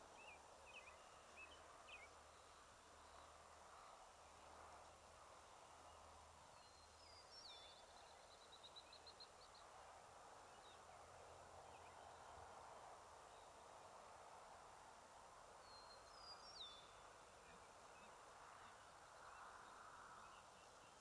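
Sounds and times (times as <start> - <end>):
faint outdoor hiss: 0.0 - 21.0
bird singing: 0.1 - 3.9, 5.9 - 9.6, 15.6 - 21.0.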